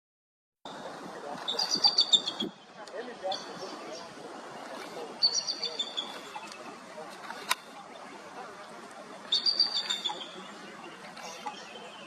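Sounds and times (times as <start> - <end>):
eagle chittering: 1.4 - 2.6, 5.1 - 6.6, 9.3 - 12.0.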